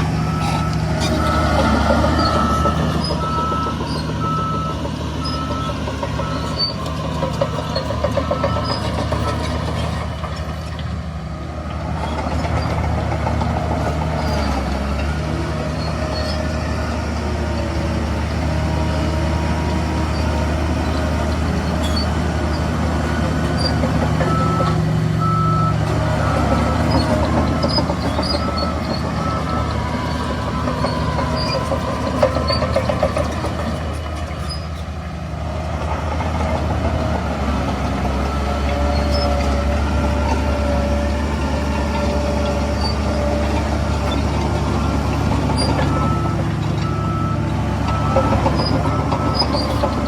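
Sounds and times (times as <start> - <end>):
reversing alarm beeping: 0.0 - 9.8, 23.6 - 33.9, 41.7 - 50.0
heavy diesel engines running: 0.0 - 50.0.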